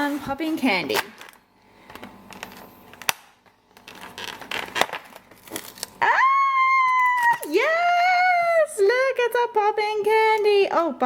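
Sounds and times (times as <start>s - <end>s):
foil wrapper crinkling: 0.0s - 7.8s
cardboard tearing: 3.8s - 6.0s.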